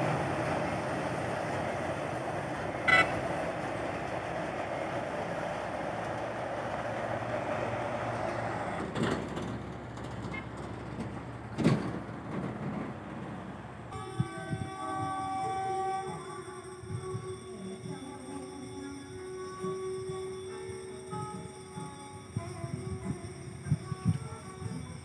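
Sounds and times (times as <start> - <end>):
train wheels rumbling on rails: 0.0 - 25.0
music: 13.9 - 25.0.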